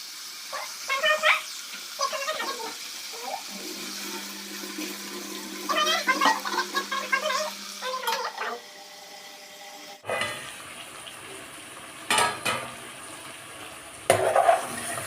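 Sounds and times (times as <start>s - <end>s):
chicken sizzling in a pan: 0.0s - 15.0s
metal spoon scraping a pan: 10.0s - 10.4s, 14.1s - 14.8s.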